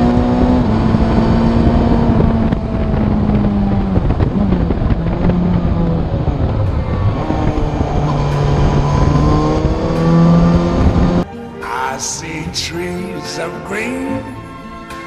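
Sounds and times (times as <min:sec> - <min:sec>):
motorcycle engine running: 0:00.0 - 0:11.2
wind on microphone: 0:00.0 - 0:11.3.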